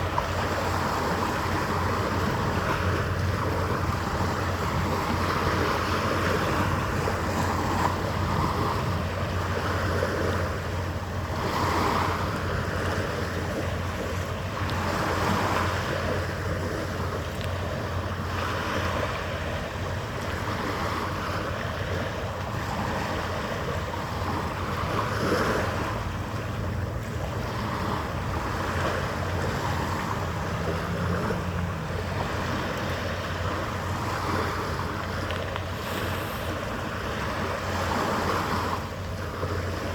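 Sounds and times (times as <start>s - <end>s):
wind blowing over microphone: 0.0s - 39.9s
water washing: 25.6s - 39.2s.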